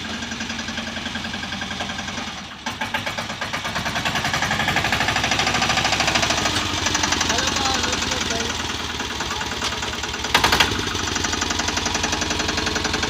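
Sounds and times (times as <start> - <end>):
small tractor engine chugging: 0.0 - 13.0.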